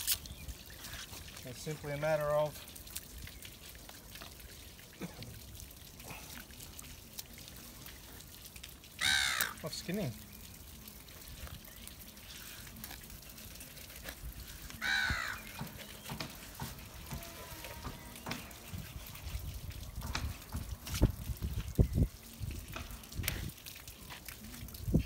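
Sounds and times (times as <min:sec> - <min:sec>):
knife skinning fish: 0:00.0 - 0:01.4
bird cawing: 0:09.0 - 0:09.6, 0:14.8 - 0:15.6.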